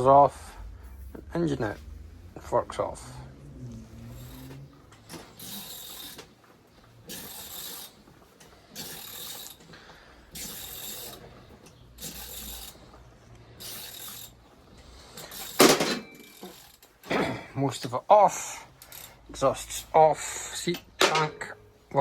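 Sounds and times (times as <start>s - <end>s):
ratchet wrench clicking: 3.9s - 6.3s, 7.0s - 8.0s, 8.7s - 9.7s, 10.3s - 12.9s, 13.6s - 14.4s, 18.8s - 19.9s.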